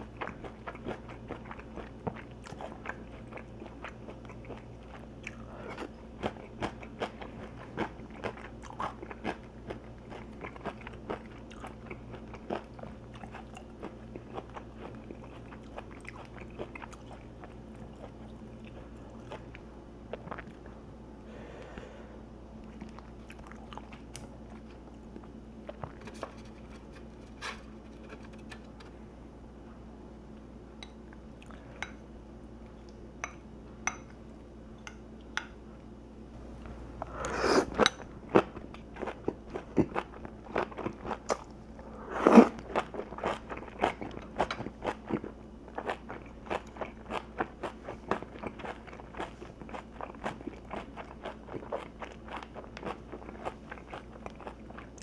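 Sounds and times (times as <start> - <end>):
crunching chewing of crispy food: 0.0 - 20.8, 37.0 - 55.0.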